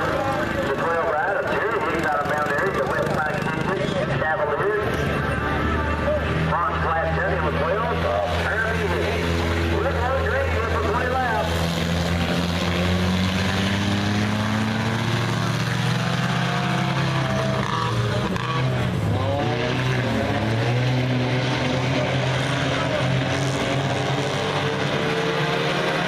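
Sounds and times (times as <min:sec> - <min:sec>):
racing car engines: 0:00.0 - 0:26.0.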